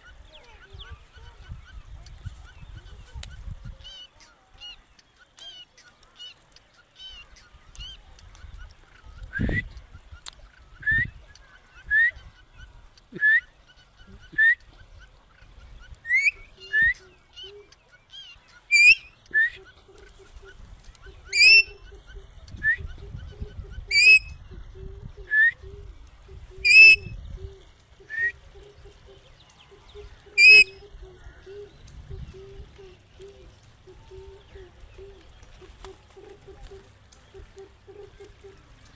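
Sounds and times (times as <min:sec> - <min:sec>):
parrot giving sharp calls: 0:21.3 - 0:21.7, 0:23.9 - 0:24.3, 0:30.4 - 0:30.8.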